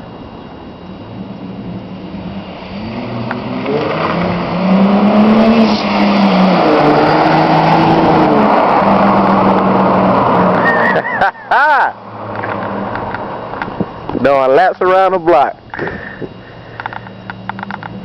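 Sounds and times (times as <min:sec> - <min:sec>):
car engine accelerating hard: 0:01.0 - 0:14.1.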